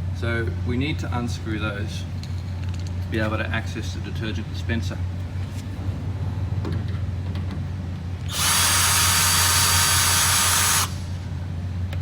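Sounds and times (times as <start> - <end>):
power drill running: 8.3 - 11.2.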